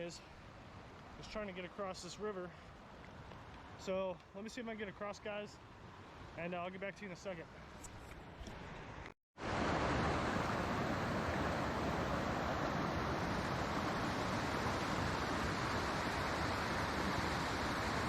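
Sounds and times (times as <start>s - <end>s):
river water rushing: 9.4s - 18.0s.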